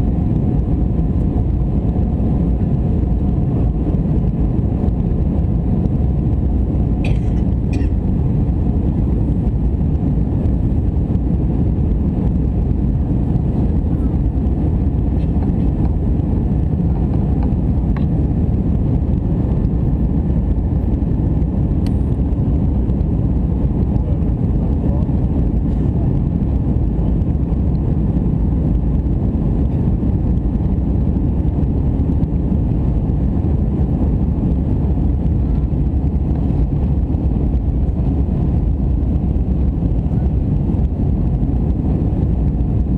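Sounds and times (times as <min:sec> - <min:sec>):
aircraft cabin rumble: 0:00.0 - 0:42.9.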